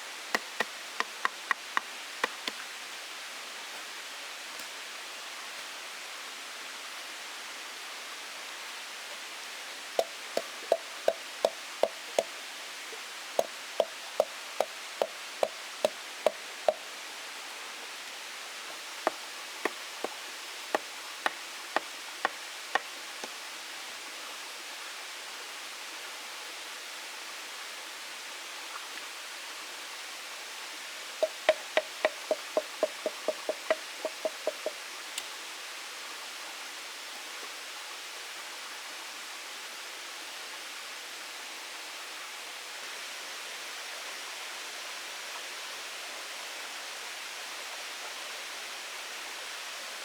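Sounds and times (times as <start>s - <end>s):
steady rushing hiss: 0.0s - 5.8s, 8.5s - 24.7s, 30.3s - 35.8s
hollow knocks on wood: 19.1s - 23.4s, 31.2s - 34.8s.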